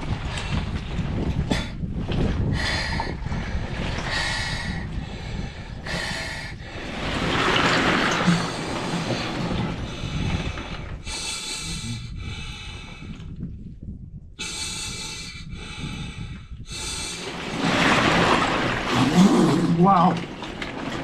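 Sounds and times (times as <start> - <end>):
man breathing hard and snorting: 8.3 - 13.1, 14.4 - 17.2.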